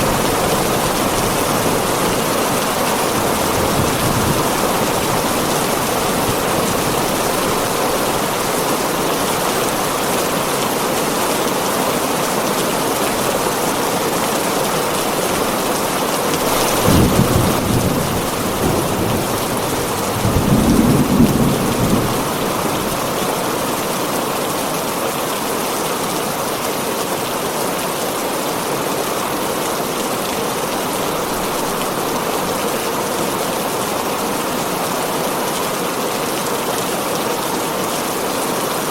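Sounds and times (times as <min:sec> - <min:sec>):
thunder rumbling: 0:00.0 - 0:11.6, 0:14.7 - 0:23.7
heavy rain on a tin roof: 0:00.0 - 0:38.9.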